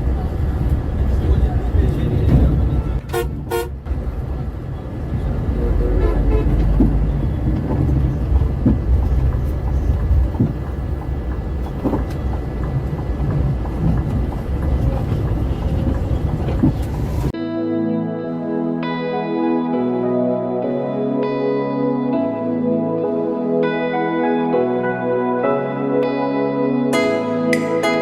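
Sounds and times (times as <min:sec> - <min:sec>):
bus engine and road rumble: 0:00.0 - 0:17.4.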